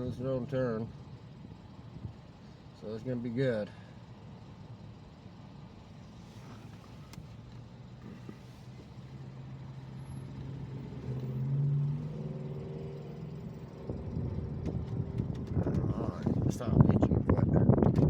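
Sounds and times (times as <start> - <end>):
road rumble: 0.0 - 18.0
vehicle engine accelerating: 8.0 - 16.6.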